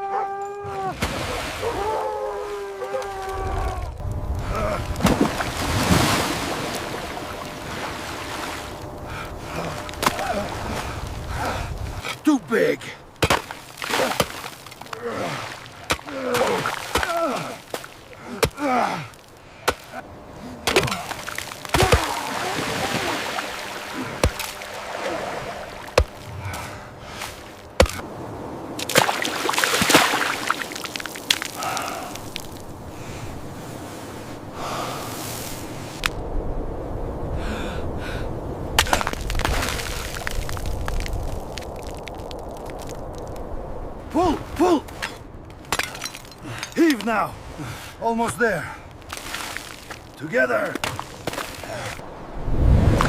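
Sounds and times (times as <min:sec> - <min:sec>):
men grunting with effort: 0:01.6 - 0:05.0, 0:09.4 - 0:11.8, 0:14.8 - 0:26.8, 0:44.1 - 0:45.0
people breathing hard and gasping: 0:04.4 - 0:05.0, 0:08.9 - 0:12.1, 0:14.8 - 0:21.2, 0:26.2 - 0:27.6, 0:31.5 - 0:35.9, 0:37.3 - 0:39.1, 0:46.3 - 0:46.8, 0:47.4 - 0:48.0, 0:51.6 - 0:52.0
sharp cracks: 0:38.8 - 0:43.4.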